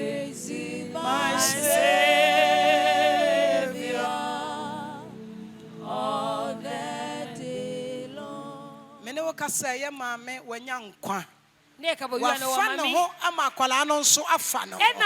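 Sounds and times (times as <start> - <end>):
sustained accompaniment: 0.0 - 9.0
hymn singing with vibrato: 0.0 - 9.6.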